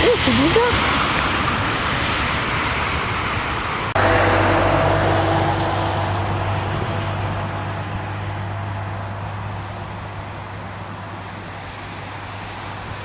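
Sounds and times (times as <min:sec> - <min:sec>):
low hum with whining tones: 0:04.0 - 0:12.6.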